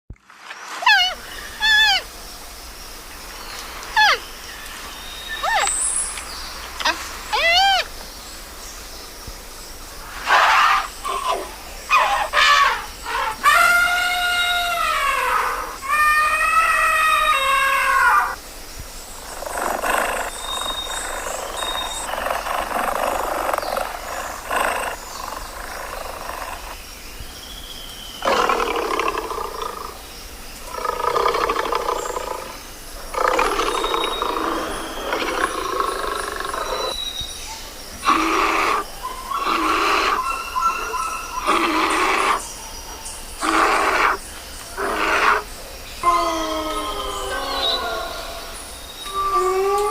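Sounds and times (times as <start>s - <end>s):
elephant trumpeting: 10.2s - 18.4s, 38.0s - 42.4s, 44.8s - 46.9s
big cats roaring: 30.7s - 37.0s, 38.0s - 42.5s, 43.4s - 44.2s, 44.8s - 49.9s.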